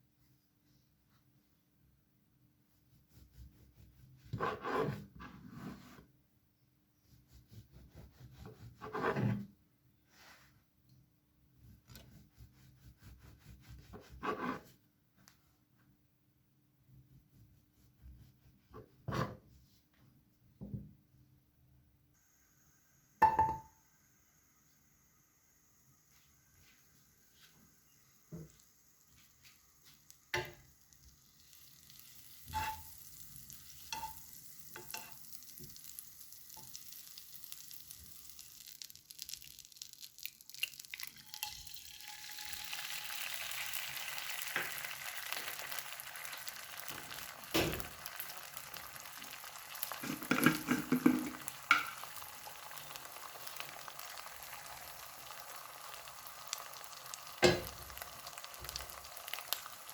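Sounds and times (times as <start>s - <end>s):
food sizzling in a pan: 22.2s - 59.9s
kitchenware clicks and taps: 50.0s - 52.0s, 57.4s - 57.8s
utensil knocking and scraping: 50.0s - 52.0s.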